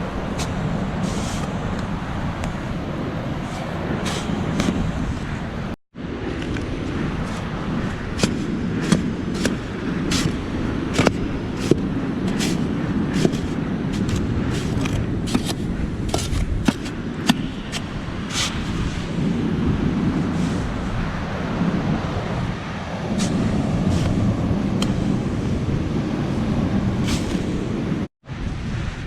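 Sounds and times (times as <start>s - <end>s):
shovel digging into sand: 0.3s - 1.6s, 3.4s - 5.3s, 7.2s - 19.3s, 20.3s - 20.8s, 23.2s - 25.0s, 27.0s - 27.7s.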